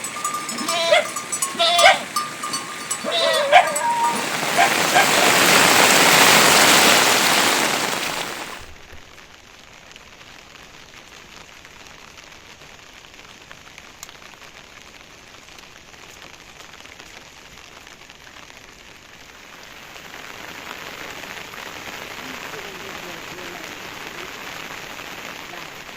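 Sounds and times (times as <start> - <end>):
rain falling: 0.0 - 25.9.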